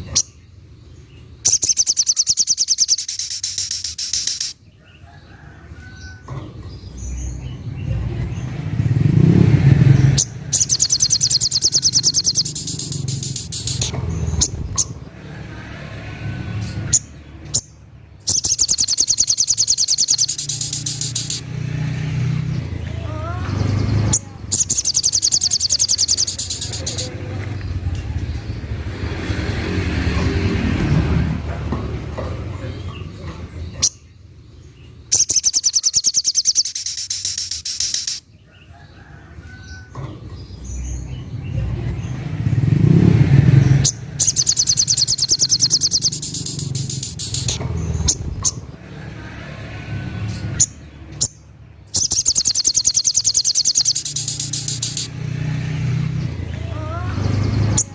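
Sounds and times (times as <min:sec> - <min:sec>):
low vehicle rumble: 0:00.0 - 0:35.9, 0:36.5 - 0:57.9
bird trilling: 0:01.4 - 0:04.7, 0:09.1 - 0:15.2, 0:16.6 - 0:21.6, 0:22.8 - 0:27.2, 0:35.0 - 0:38.9, 0:42.8 - 0:48.8, 0:50.4 - 0:55.2.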